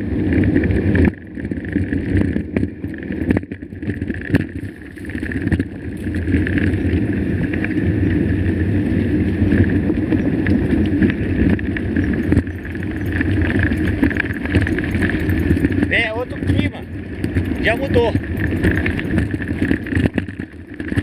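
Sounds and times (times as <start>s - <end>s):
bike rattling: 0.0s - 21.0s
bike tyre rumble on dirt: 0.0s - 21.0s.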